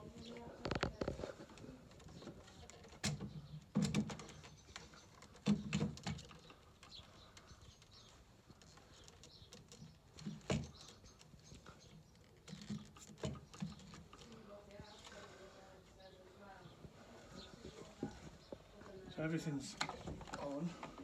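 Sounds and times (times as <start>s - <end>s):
knocks and clicks of parts handled: 1.9s - 7.8s, 8.5s - 14.4s.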